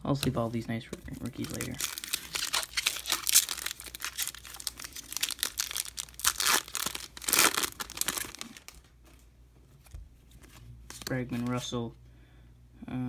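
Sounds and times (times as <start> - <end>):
foil wrapper tearing and crinkling: 1.2 - 8.8.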